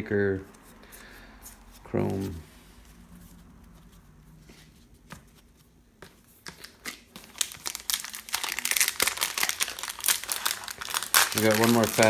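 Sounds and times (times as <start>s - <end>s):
wrapper crinkling and tearing: 6.6s - 12.0s.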